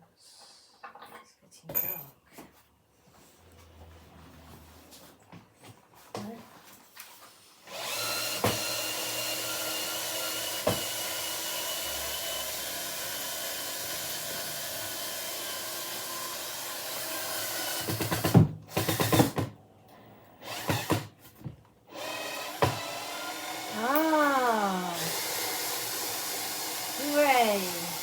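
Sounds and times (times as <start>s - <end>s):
small electric motor running: 22.0s - 28.0s.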